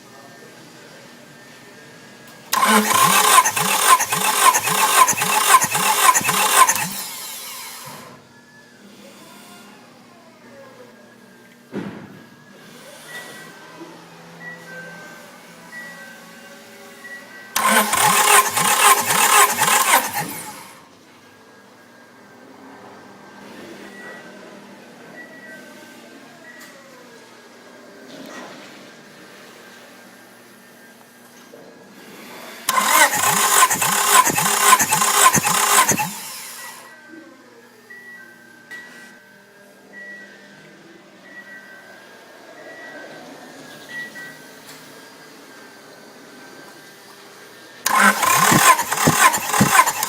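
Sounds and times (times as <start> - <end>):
car engine starter cranking: 2.5 - 7.1, 17.6 - 20.8, 32.7 - 36.8, 47.9 - 50.0.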